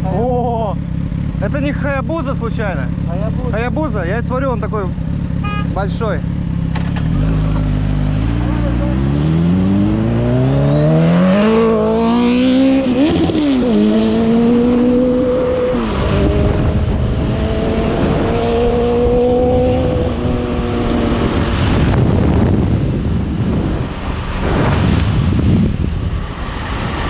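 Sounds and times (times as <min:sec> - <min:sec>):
motorcycle engine accelerating: 0:00.0 - 0:27.0
wind rush on microphone: 0:11.6 - 0:27.0.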